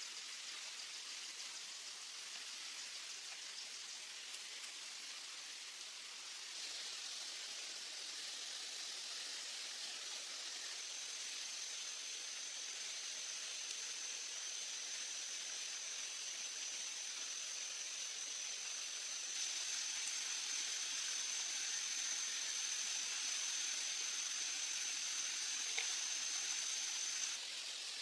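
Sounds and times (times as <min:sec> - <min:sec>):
water hissing: 0:06.2 - 0:28.0
thin high whine: 0:06.5 - 0:28.0.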